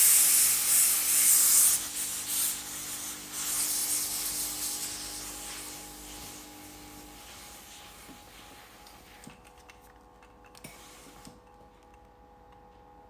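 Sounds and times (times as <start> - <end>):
steam iron hissing: 0.0 - 9.3.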